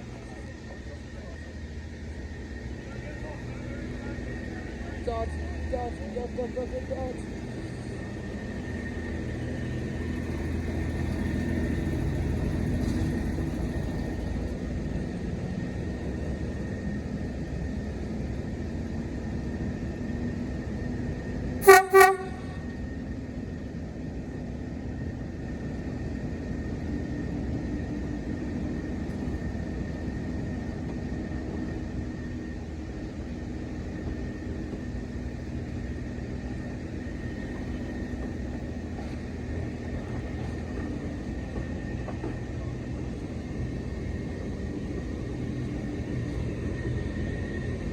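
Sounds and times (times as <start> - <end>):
diesel locomotive engine running: 0.0 - 47.9
locomotive horn toots: 21.6 - 22.7.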